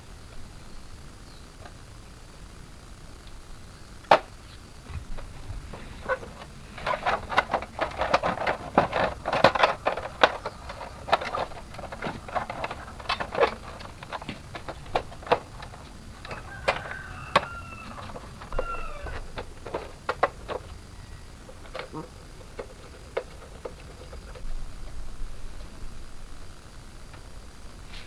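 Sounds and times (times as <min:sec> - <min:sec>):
small hard objects clicking: 0:06.4 - 0:25.0.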